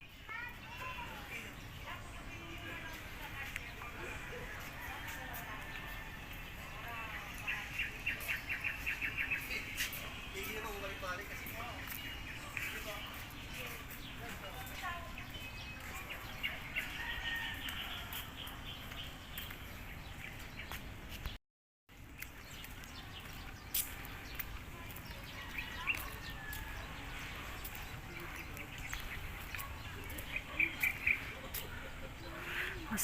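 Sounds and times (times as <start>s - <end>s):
outdoor background noise: 0.0s - 33.0s
birds chirping and calling: 6.4s - 21.4s, 22.0s - 33.0s.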